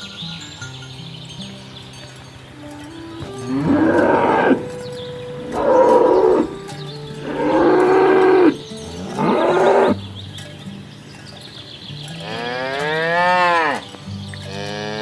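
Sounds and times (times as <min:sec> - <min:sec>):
cattle mooing: 0:03.2 - 0:10.0.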